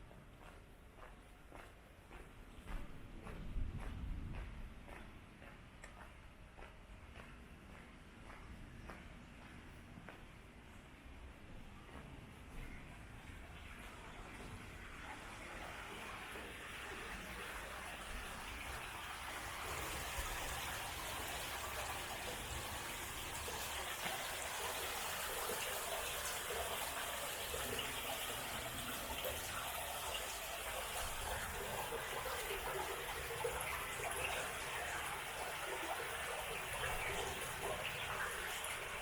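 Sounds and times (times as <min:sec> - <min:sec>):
stream flowing: 0:14.8 - 0:39.0.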